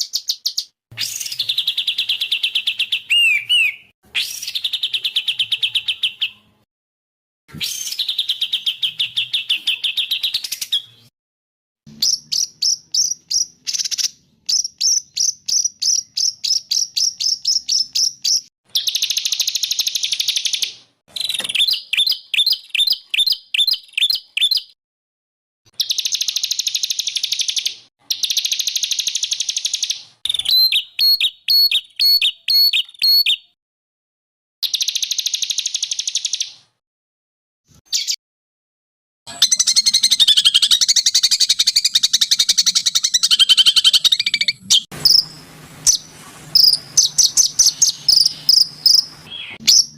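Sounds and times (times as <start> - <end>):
songbird trills and chirps: 0.0 - 6.5, 11.9 - 24.8, 25.8 - 33.6, 39.3 - 45.3, 46.6 - 49.9.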